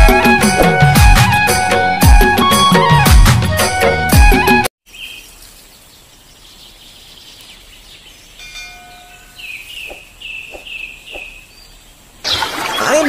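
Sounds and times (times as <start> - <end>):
music: 0.0 - 4.7
bird chirping: 4.9 - 13.0
faint outdoor ambience: 4.9 - 13.0.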